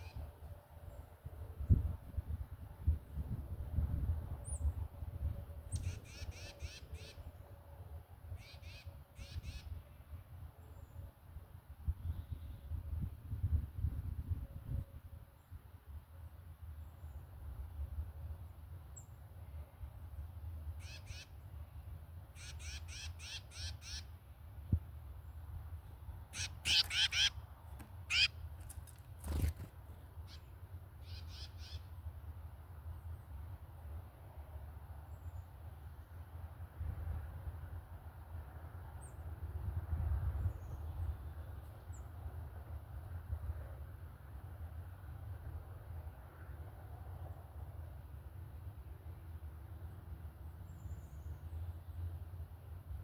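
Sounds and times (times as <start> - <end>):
bird calling harsh notes: 26.3 - 27.4, 28.0 - 28.4
harsh bird calls: 26.3 - 29.6.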